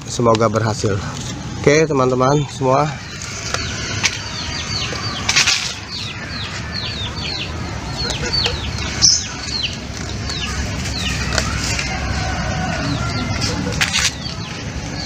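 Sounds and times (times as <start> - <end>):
birds cheeping: 2.2 - 15.0.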